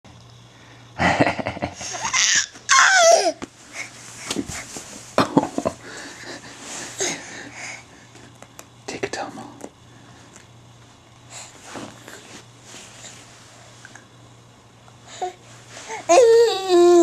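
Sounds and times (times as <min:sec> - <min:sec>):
child laughing: 0:01.8 - 0:03.4
child squealing: 0:02.0 - 0:03.4
child babbling: 0:16.1 - 0:17.0.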